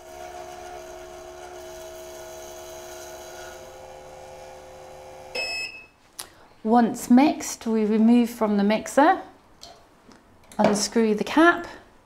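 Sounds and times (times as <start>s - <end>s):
capsule mixer humming: 0.0s - 5.4s.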